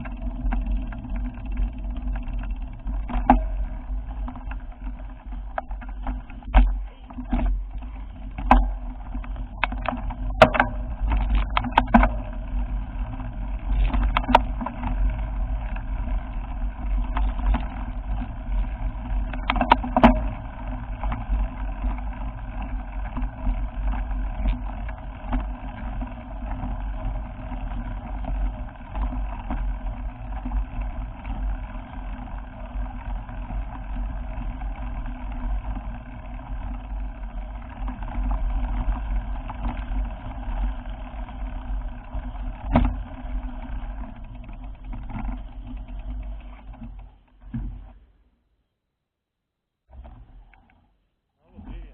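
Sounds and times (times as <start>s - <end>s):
sharp knocks and rattles: 0.0s - 48.2s
vehicle rumble: 0.0s - 48.3s.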